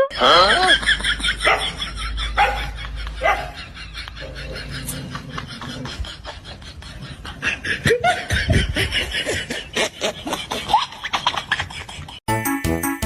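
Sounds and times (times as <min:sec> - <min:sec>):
laughter: 0:00.2 - 0:12.2
music with steady beat: 0:12.3 - 0:13.0.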